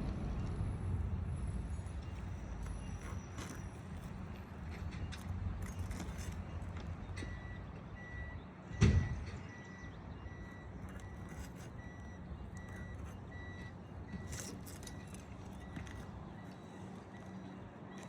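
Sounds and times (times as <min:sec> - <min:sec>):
low engine rumble: 0:00.0 - 0:18.0
reversing alarm beeping: 0:00.0 - 0:18.0
loud thump: 0:08.8 - 0:09.4.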